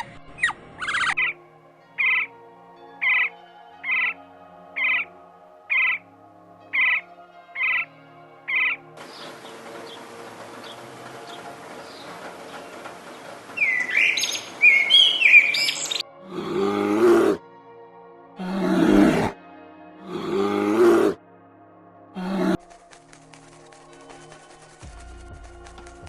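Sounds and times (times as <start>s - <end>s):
bird chirps: 0.0s - 1.4s, 2.0s - 2.3s, 3.0s - 4.2s, 4.8s - 5.1s, 5.7s - 6.0s, 6.7s - 7.0s, 8.5s - 16.0s
drawn-out animal calls: 8.5s - 17.4s.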